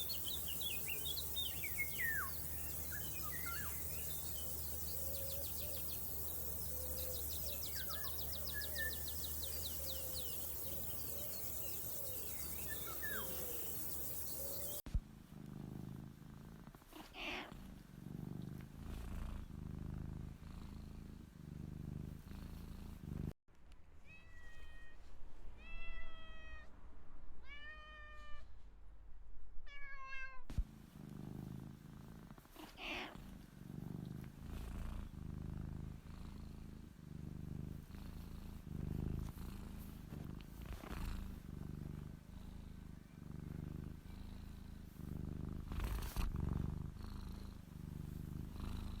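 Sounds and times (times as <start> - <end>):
birds chirping: 0.0 - 14.8
insects trilling: 0.0 - 14.8
cat purring: 0.0 - 23.4, 30.5 - 49.0
cat meowing: 27.4 - 28.5, 29.7 - 30.5, 32.8 - 33.1.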